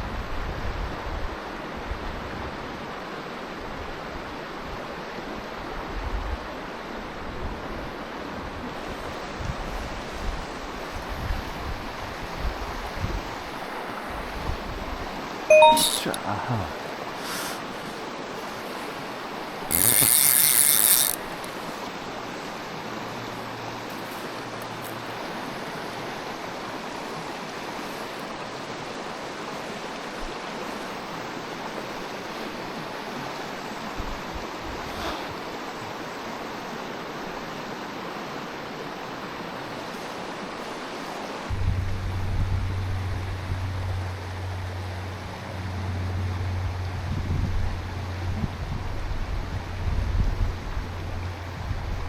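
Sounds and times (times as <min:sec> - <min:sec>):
mountain stream running: 0:01.4 - 0:52.0
fly reel clicker ratcheting: 0:19.7 - 0:21.6.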